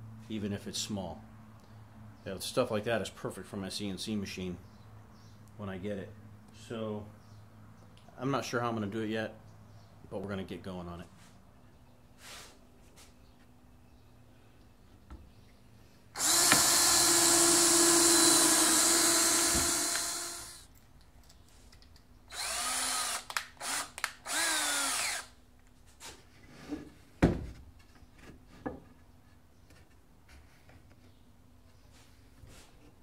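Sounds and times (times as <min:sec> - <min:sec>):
power drill running: 0:16.2 - 0:20.7, 0:22.3 - 0:25.4.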